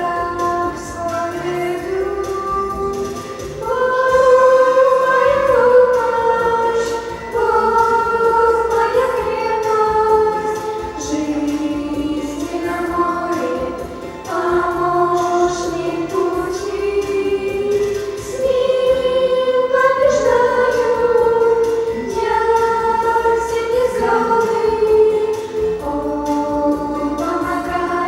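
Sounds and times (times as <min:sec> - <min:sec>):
choir singing: 0:03.6 - 0:28.0.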